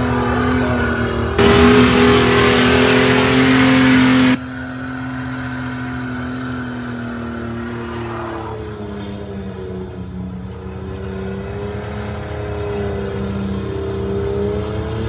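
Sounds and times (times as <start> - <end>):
car engine at high revs: 0.0 - 4.4
loud rushing noise: 1.4 - 4.4.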